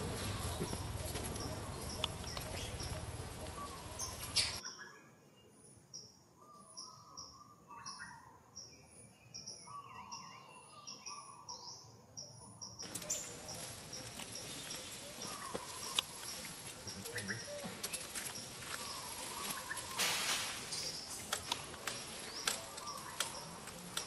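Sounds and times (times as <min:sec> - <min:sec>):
warbling bird calls: 0:00.0 - 0:04.8, 0:12.8 - 0:24.0
birds chirping: 0:00.0 - 0:24.0
background hiss: 0:12.8 - 0:24.0.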